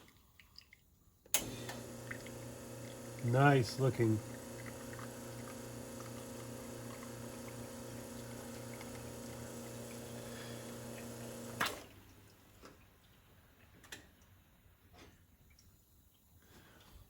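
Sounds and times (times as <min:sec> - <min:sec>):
espresso machine pump humming: 0:01.4 - 0:11.8.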